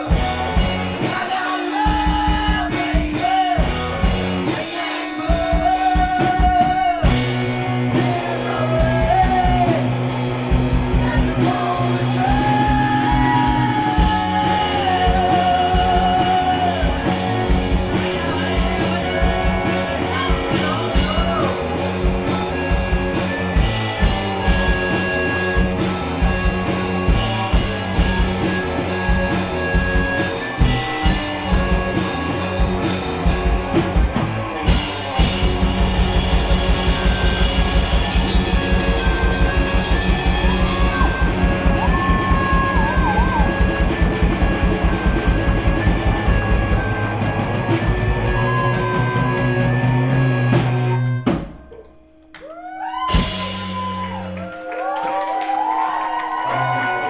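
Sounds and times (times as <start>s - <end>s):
person singing: 0.0s - 10.2s, 10.9s - 23.0s, 36.8s - 51.4s
live rock band playing: 0.0s - 52.2s, 53.0s - 54.5s.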